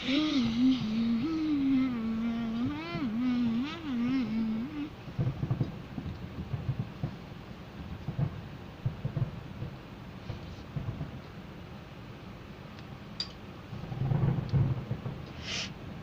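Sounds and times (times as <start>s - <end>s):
person humming a tune: 0.0s - 5.0s
low rumbling thumps: 0.3s - 11.2s, 13.8s - 15.2s.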